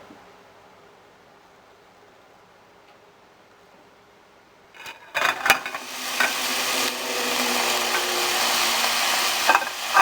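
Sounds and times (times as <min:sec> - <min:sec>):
vegetables sizzling in a pan: 0:04.8 - 0:10.0.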